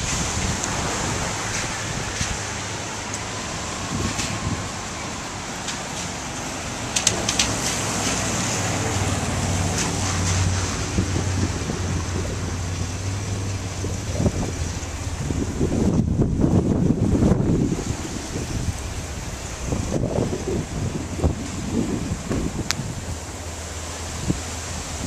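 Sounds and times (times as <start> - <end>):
hurricane wind: 0.0 - 25.0.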